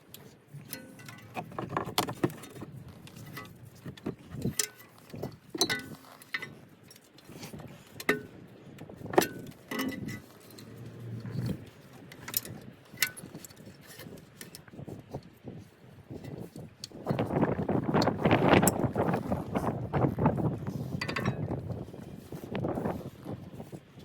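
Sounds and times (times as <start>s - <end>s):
metal tools clinking and knocking: 0.2s - 7.4s, 9.0s - 10.9s, 21.0s - 21.7s.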